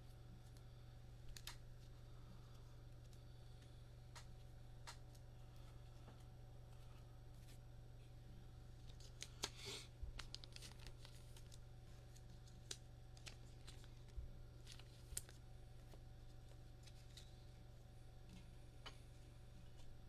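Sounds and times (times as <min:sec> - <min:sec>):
low steady hum: 0:00.0 - 0:20.0
cards clicking and tapping: 0:03.0 - 0:05.3
cards rustling: 0:08.8 - 0:17.6.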